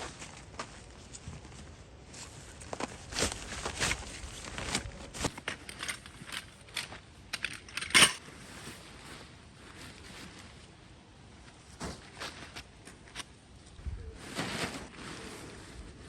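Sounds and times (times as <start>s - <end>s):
camping gear crunching and clinking: 2.2s - 10.6s.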